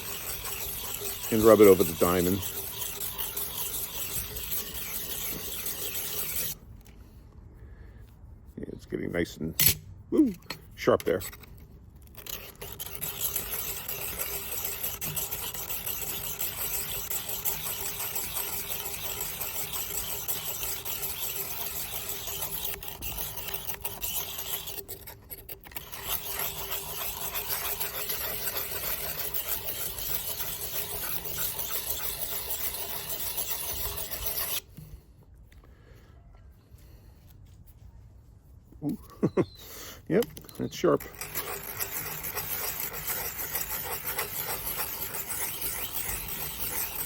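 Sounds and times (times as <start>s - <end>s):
blade rasping on sharpening plate: 0.0s - 6.6s, 12.2s - 34.7s, 40.4s - 47.0s.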